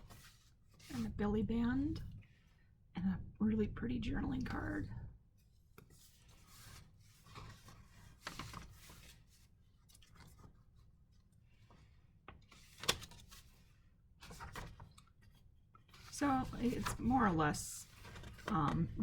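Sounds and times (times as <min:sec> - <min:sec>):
pages rustling as turned: 0:05.8 - 0:19.0.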